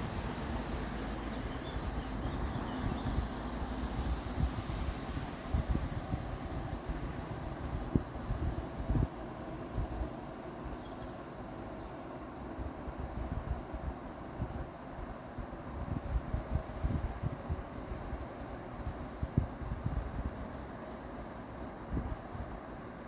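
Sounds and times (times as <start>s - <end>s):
wind buffeting microphone: 0.0s - 10.2s, 12.6s - 20.8s, 21.6s - 22.9s.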